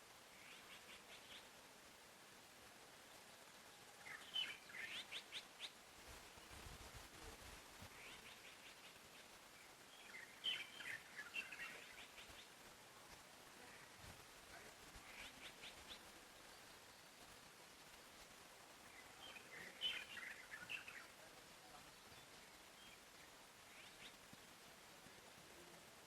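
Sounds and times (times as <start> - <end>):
soft steady hiss: 0.0 - 26.0
songbirds chirping: 0.0 - 26.0.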